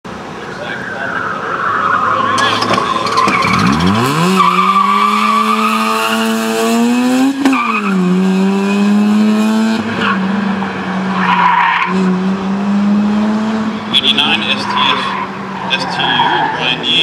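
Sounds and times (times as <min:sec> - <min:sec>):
tyre squeal: 0:00.9 - 0:06.2
rotary engine revving: 0:02.1 - 0:11.2.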